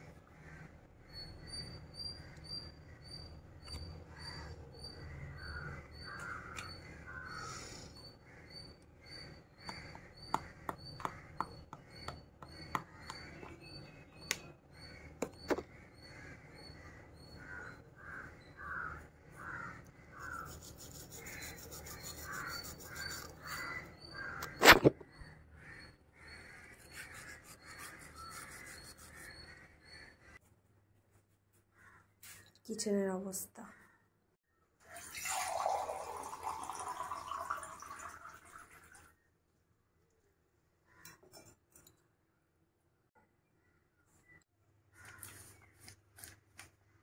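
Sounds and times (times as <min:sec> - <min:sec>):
birds harsh calls: 0:00.2 - 0:30.4.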